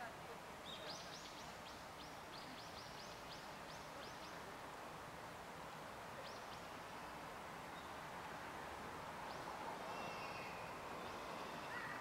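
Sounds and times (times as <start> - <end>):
outdoor hiss: 0.0 - 12.0
songbird calling: 9.3 - 12.0.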